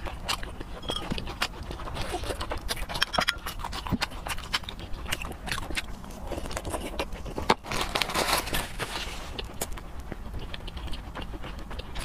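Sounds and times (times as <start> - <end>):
wet chewing and lip smacking: 0.0 - 12.0.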